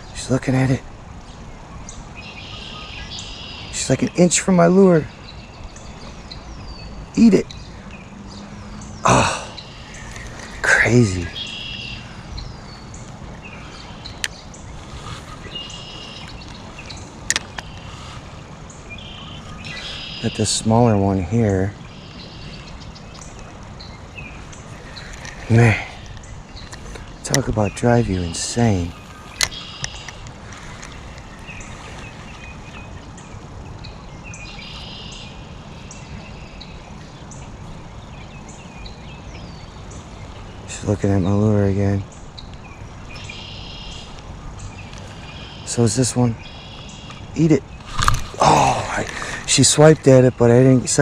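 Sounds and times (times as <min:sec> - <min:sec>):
high chirping calls: 0:00.0 - 0:51.0
moving water hiss: 0:00.0 - 0:51.0
sharp clicks: 0:47.8 - 0:48.4.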